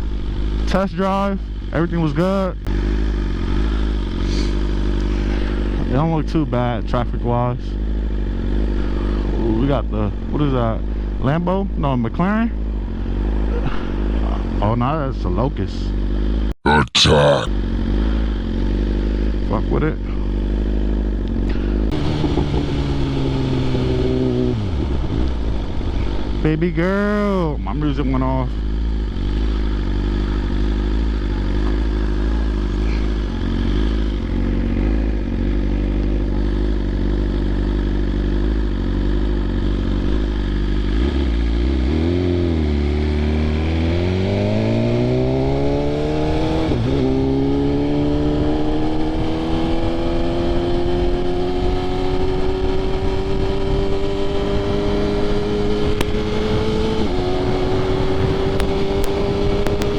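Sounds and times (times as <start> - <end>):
motorcycle engine accelerating: 0.0 - 59.9
gear change: 17.5 - 59.9.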